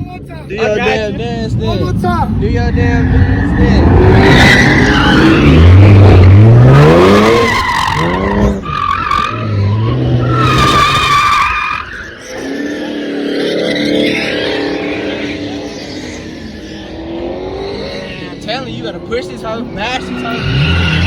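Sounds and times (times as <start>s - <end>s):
car engine revving: 0.9s - 21.0s
tires squealing on pavement: 2.6s - 21.0s.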